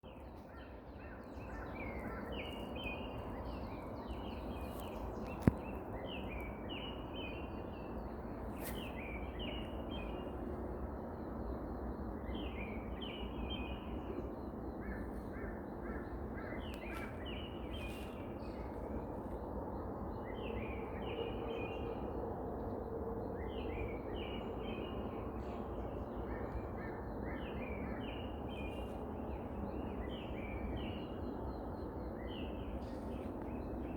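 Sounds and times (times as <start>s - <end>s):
birds singing: 11.8s - 33.9s.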